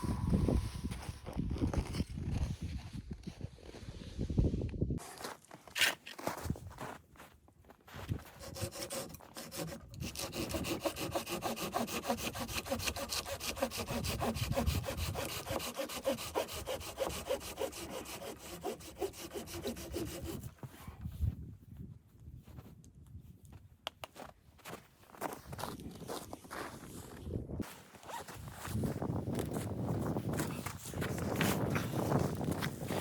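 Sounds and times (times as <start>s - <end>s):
hand saw cutting wood: 8.4s - 20.5s.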